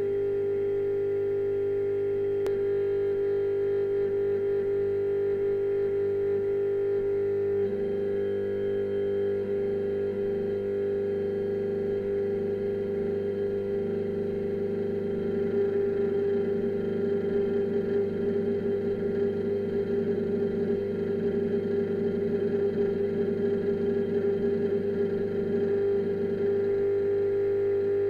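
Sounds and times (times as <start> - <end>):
dark electronic drone: 7.2 - 27.5.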